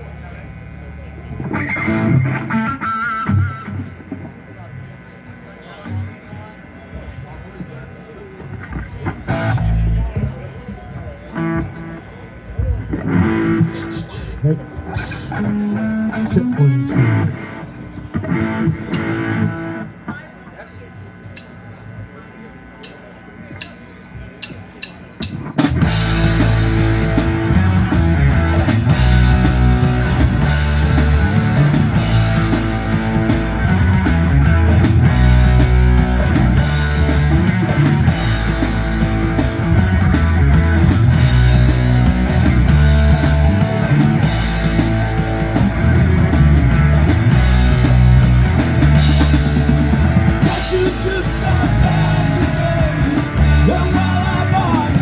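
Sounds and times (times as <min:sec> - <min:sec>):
bass guitar: 0:00.0 - 0:20.2, 0:24.4 - 0:55.0
electric guitar: 0:00.0 - 0:55.0
drum kit: 0:18.2 - 0:19.5, 0:24.4 - 0:55.0.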